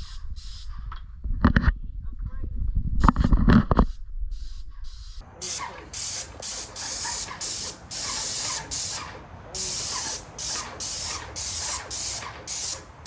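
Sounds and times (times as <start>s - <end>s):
spray paint hissing bursts: 0.0s - 0.8s, 4.4s - 13.0s.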